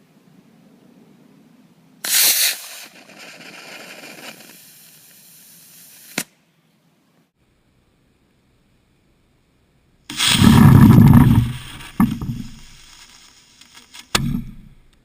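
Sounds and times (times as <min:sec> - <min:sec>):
rocket motor rushing hiss: 0:02.0 - 0:06.3, 0:10.1 - 0:13.7
sharp pop: 0:14.1 - 0:14.8.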